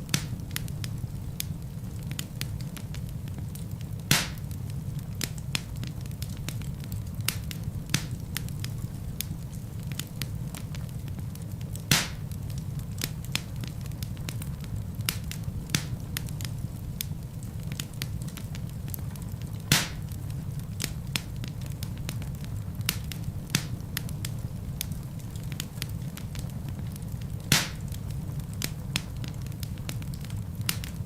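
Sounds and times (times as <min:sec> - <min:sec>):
burning wood popping loudly: 0:00.0 - 0:31.0
log fire crackling: 0:00.0 - 0:31.0.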